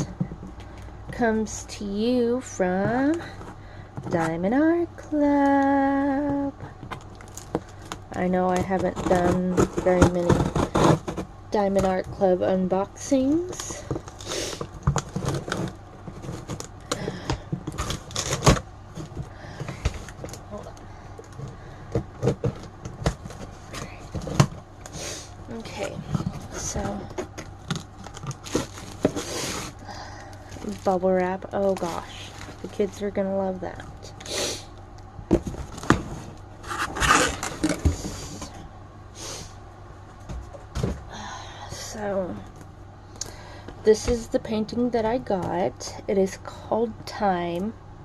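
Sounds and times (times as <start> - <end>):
plastic packaging rustling and crinkling: 6.1 - 12.3, 13.2 - 33.1, 35.3 - 38.6.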